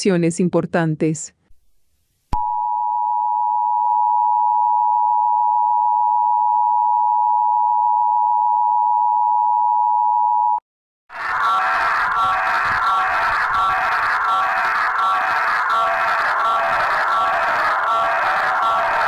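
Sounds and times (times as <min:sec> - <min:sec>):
pulsing alarm tones: 0:11.1 - 0:19.0.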